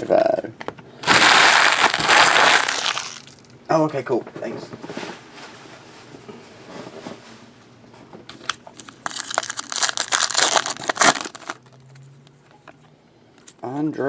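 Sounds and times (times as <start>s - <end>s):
wrapper crinkling and tearing: 1.0s - 3.5s, 8.4s - 11.8s.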